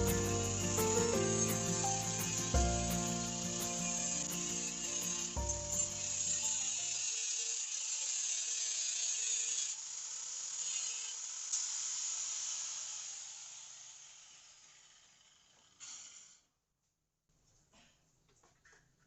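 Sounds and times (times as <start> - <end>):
scraping hiss on steel: 15.8 - 16.4.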